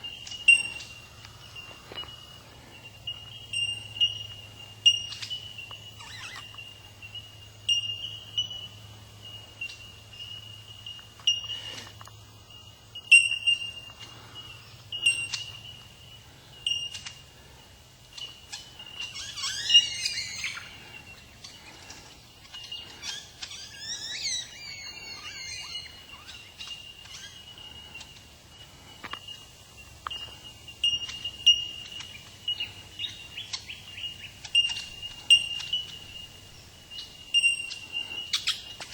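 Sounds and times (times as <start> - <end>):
bellbirds bell-like notes: 0.0 - 38.9
bird warbling: 18.2 - 28.2, 30.9 - 38.9.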